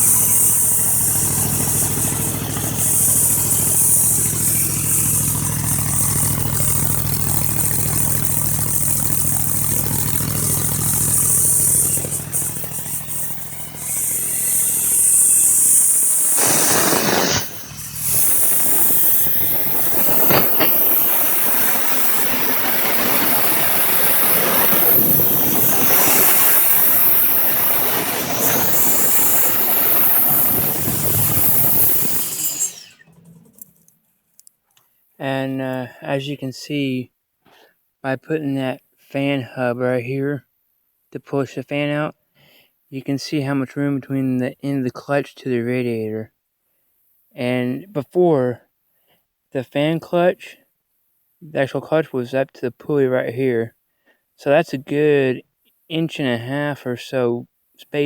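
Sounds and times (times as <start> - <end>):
loud rushing noise: 0.0 - 32.5
hiss: 0.0 - 33.1
engine idling: 0.0 - 33.9.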